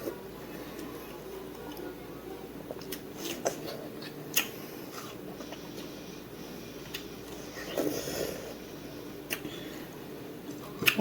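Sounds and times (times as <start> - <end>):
chewing watermelon: 2.6 - 5.9, 10.5 - 11.0.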